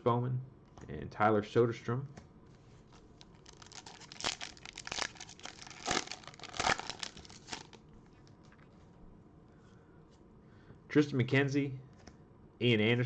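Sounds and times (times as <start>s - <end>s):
foil wrapper crinkling and tearing: 3.1s - 7.8s.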